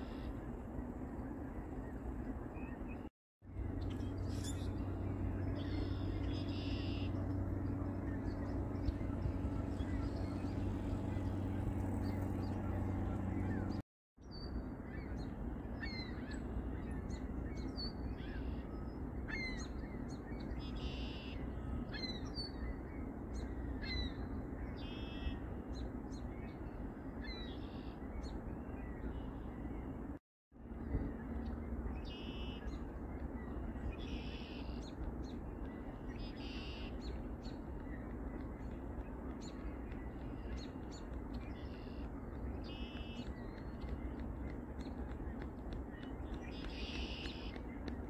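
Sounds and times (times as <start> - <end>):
low mechanical hum: 0.0 - 48.0
low rumble: 3.5 - 13.8
birds calling: 3.6 - 13.8, 31.2 - 48.0.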